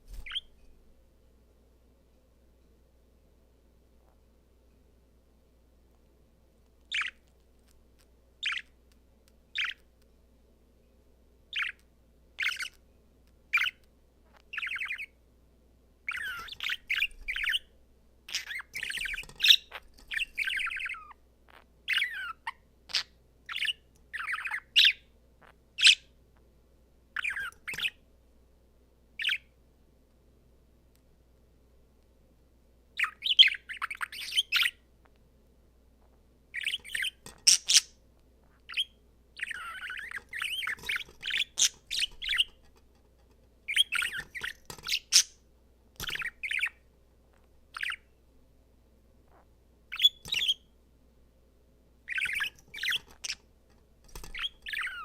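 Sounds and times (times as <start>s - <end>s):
low steady hum: 0.0s - 33.0s, 34.8s - 55.0s
budgerigar chirping and warbling: 0.2s - 0.5s, 6.9s - 7.2s, 8.4s - 8.6s, 9.6s - 9.8s, 12.4s - 12.8s, 14.5s - 15.1s, 16.1s - 17.6s, 18.3s - 25.0s, 27.2s - 28.0s, 29.2s - 29.4s, 36.6s - 37.9s, 38.7s - 42.6s, 43.7s - 45.3s, 46.0s - 46.8s, 47.8s - 48.1s, 49.3s - 50.6s, 52.1s - 53.4s, 54.2s - 55.0s.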